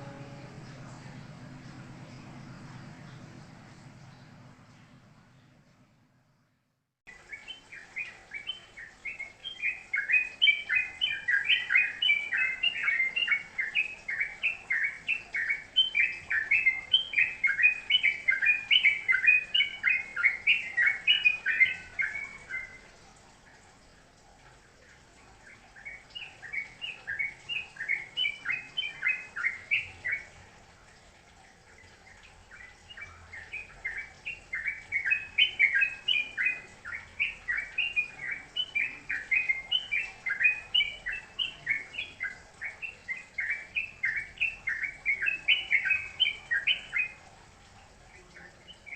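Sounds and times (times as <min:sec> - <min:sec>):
songbird chattering: 0:32.5 - 0:47.2.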